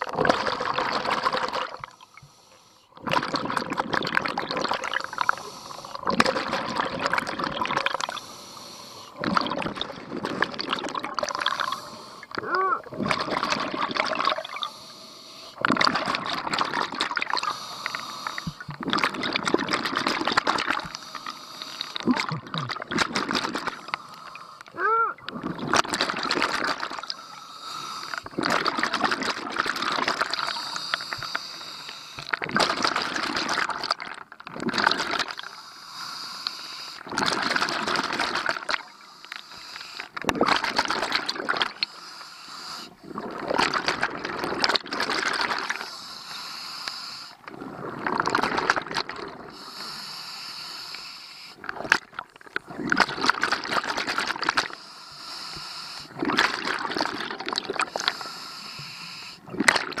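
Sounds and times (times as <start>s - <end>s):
gurgling exhaled bubbles: 0.0s - 2.0s, 3.0s - 8.2s, 9.1s - 14.8s, 15.4s - 35.5s, 37.0s - 42.0s, 42.7s - 46.0s, 47.4s - 49.8s, 51.6s - 54.8s, 56.0s - 58.4s, 59.4s - 60.0s
diver breathing through regulator: 1.8s - 2.9s, 4.8s - 6.6s, 7.9s - 9.8s, 11.2s - 15.7s, 17.2s - 18.8s, 20.6s - 22.4s, 23.0s - 32.4s, 35.4s - 43.2s, 45.2s - 48.0s, 49.4s - 51.9s, 53.9s - 57.0s, 57.8s - 59.6s.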